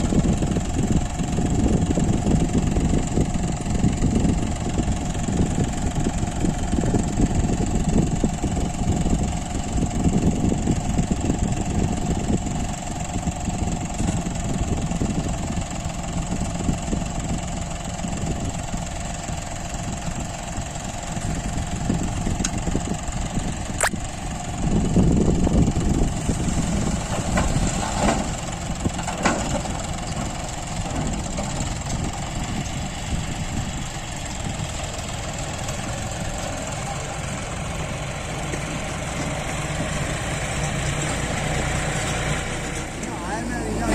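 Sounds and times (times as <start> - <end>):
heavy diesel engine running: 0.0 - 43.9
sharp click: 23.8 - 24.0.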